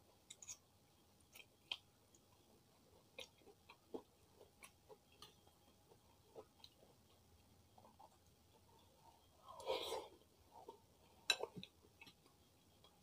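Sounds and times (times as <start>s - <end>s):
chewing and wet mouth sounds: 0.1s - 13.0s.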